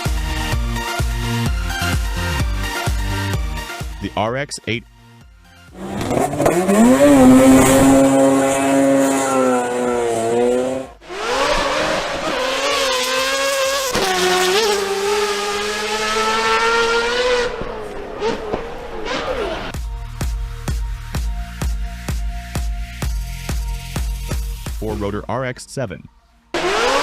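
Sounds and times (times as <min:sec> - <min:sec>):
rotary engine revving: 0:05.8 - 0:19.8, 0:26.5 - 0:27.0.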